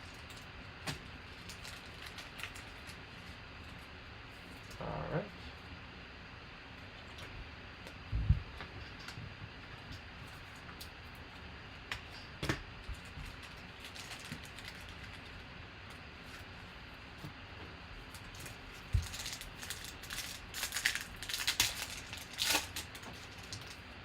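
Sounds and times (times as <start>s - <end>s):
wrapper crinkling: 1.3s - 3.4s, 13.0s - 15.5s, 18.0s - 23.8s.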